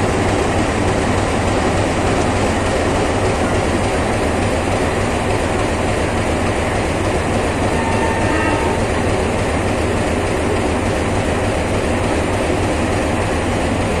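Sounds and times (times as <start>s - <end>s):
train wheels rumbling on track: 0.0s - 14.0s
faint brief squeal: 7.7s - 8.8s.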